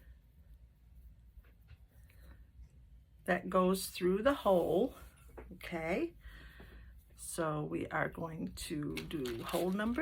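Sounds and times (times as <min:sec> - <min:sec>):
paper and string handling ticks: 0:08.9 - 0:10.0.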